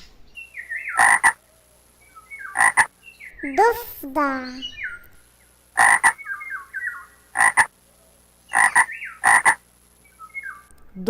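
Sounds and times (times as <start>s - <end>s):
frog croaking: 0.9s - 1.5s, 2.4s - 2.9s, 5.7s - 7.7s, 8.5s - 9.6s.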